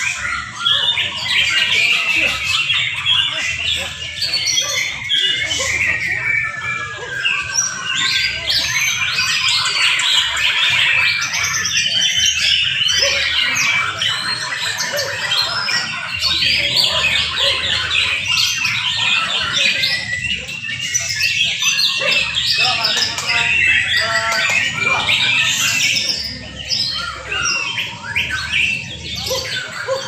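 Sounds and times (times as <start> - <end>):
songbirds singing: 0.0 - 30.0.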